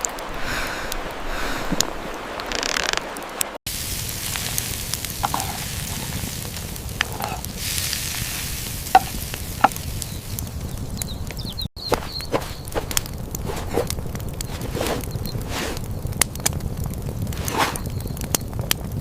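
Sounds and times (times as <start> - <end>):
food sizzling in a pan: 3.7 - 10.5
sharp pops: 3.7 - 18.9.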